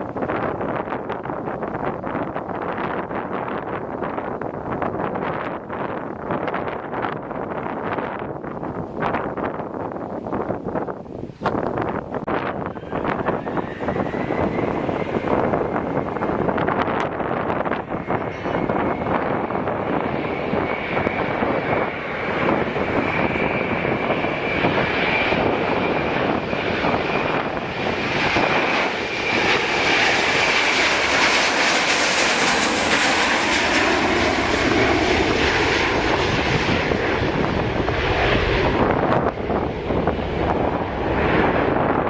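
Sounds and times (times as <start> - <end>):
jet engine rushing: 0.0 - 42.0
jet engine whine: 0.0 - 42.0.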